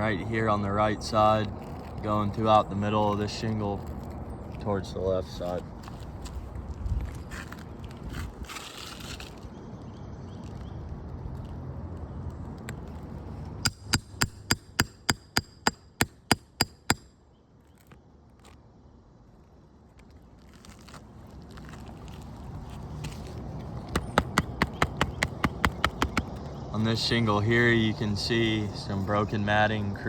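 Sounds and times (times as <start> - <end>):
hammer striking steel tool: 13.7 - 17.1.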